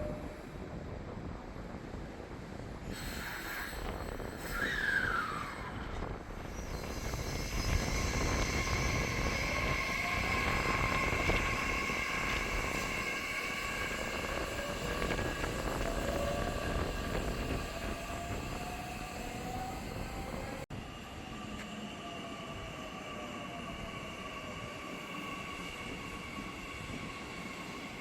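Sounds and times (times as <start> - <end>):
train wheels rumbling on rails: 0.0 - 28.0
electric train motor whine: 6.8 - 20.5.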